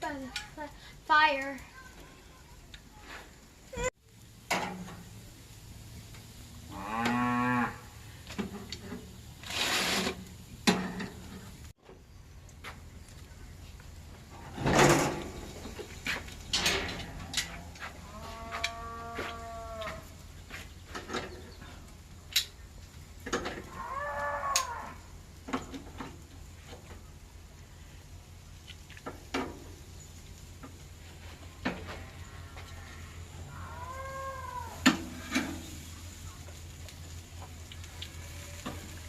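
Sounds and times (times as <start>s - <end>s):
cow mooing: 6.7s - 7.9s, 17.0s - 20.0s, 23.7s - 25.0s.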